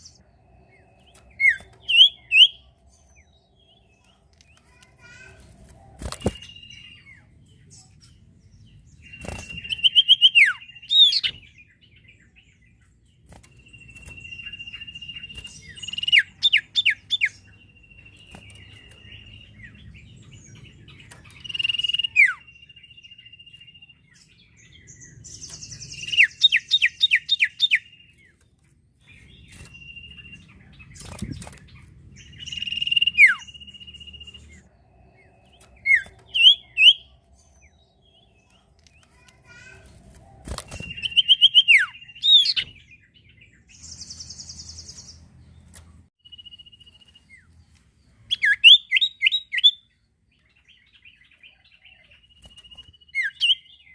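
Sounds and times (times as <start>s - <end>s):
bird singing whistles and falling notes: 1.0s - 2.6s, 6.0s - 7.0s, 9.0s - 11.5s, 13.4s - 19.5s, 29.1s - 34.7s, 35.4s - 37.1s, 40.4s - 42.9s.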